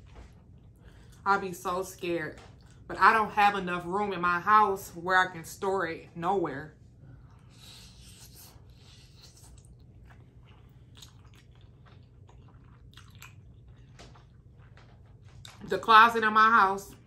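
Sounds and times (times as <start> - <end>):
person chewing food: 0.0 - 1.2, 7.2 - 15.6.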